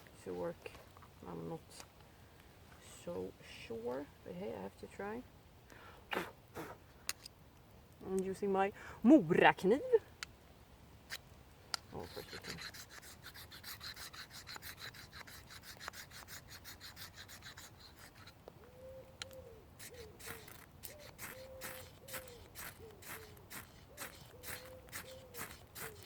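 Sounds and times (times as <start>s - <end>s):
knife scraping fire steel: 11.1s - 18.4s, 19.8s - 26.0s.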